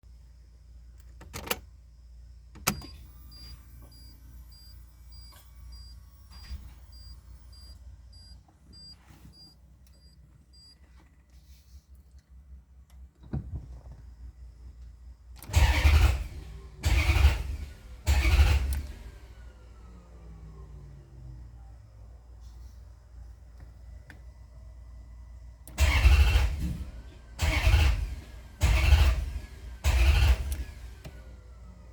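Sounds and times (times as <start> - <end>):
car starter cranking: 2.6 - 8.3, 15.4 - 19.5, 25.6 - 31.8
high dashboard chime beeping: 2.8 - 10.7.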